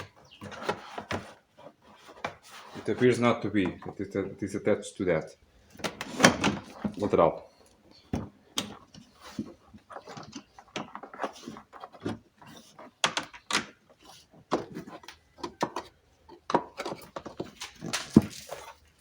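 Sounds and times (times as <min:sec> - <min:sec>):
plastic door trim clicking and rattling: 0:05.7 - 0:07.1, 0:09.9 - 0:18.6.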